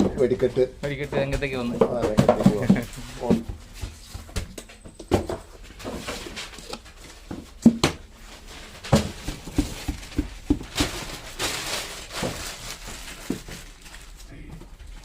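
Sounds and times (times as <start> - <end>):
objects knocking and tapping: 0.0 - 8.1, 8.7 - 11.2
rustling of handled things: 0.0 - 15.0.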